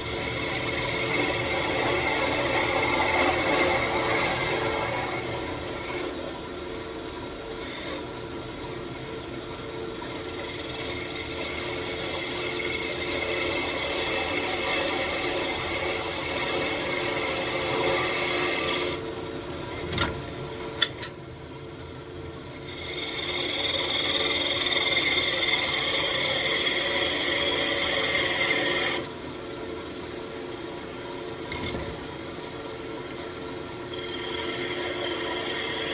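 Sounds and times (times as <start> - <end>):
tool scraping spinning wood: 0.0 - 6.2, 10.0 - 19.0, 22.7 - 29.1, 33.9 - 35.9
wood lathe running: 0.0 - 6.2, 7.6 - 8.0, 10.0 - 19.0, 22.7 - 29.1, 33.8 - 35.9.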